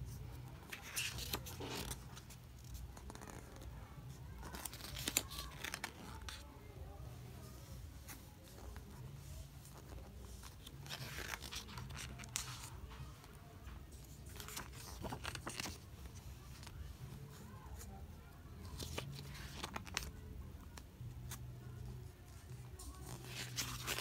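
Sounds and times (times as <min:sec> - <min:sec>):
book pages rustling: 0:00.1 - 0:03.7, 0:04.3 - 0:06.4, 0:07.5 - 0:17.9, 0:18.6 - 0:24.0.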